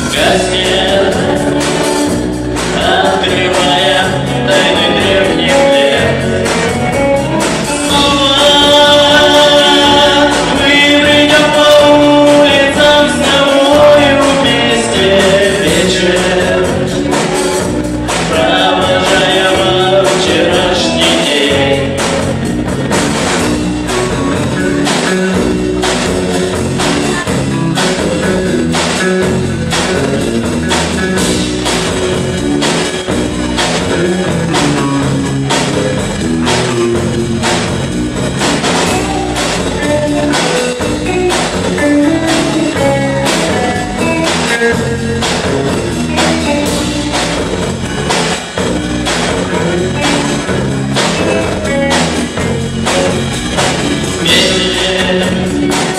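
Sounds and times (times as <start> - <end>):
person singing: 0.0 - 22.4, 38.7 - 45.3, 51.0 - 55.9
bass guitar: 0.0 - 55.9
drum kit beat: 0.0 - 55.9
electric guitars: 0.0 - 55.9.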